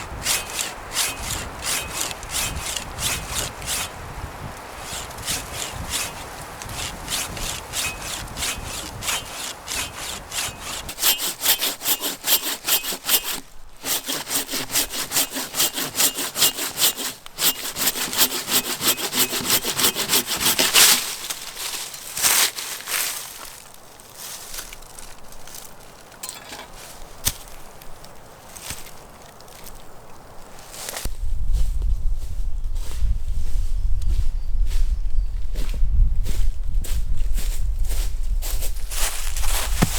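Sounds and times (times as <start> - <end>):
hand saw cutting wood: 0.0 - 23.2, 39.4 - 39.9
knocks and rustles: 26.2 - 27.6, 39.0 - 39.9.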